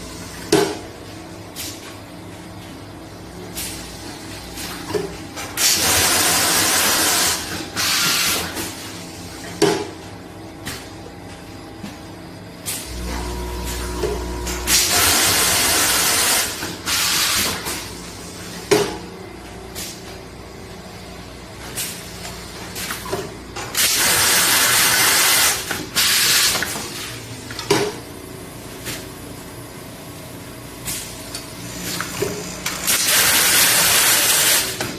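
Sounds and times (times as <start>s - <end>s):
machine humming: 12.4s - 16.6s
machine hiss of air: 14.7s - 18.6s.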